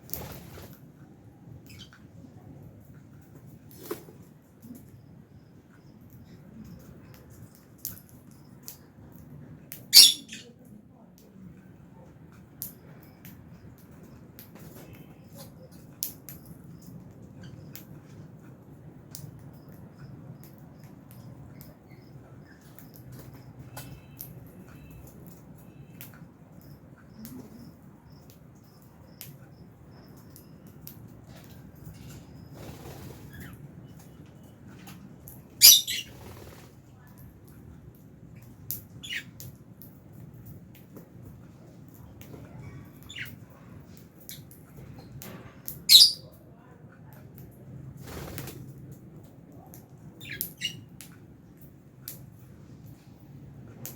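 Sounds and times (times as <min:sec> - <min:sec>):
lovebirds chirping and squawking: 0:01.6 - 0:02.0, 0:09.8 - 0:10.5, 0:35.6 - 0:36.5, 0:38.4 - 0:39.4, 0:42.6 - 0:43.4, 0:45.8 - 0:46.3, 0:50.2 - 0:50.9
lovebirds chirping: 0:09.8 - 0:10.6, 0:35.6 - 0:36.3, 0:45.8 - 0:46.3.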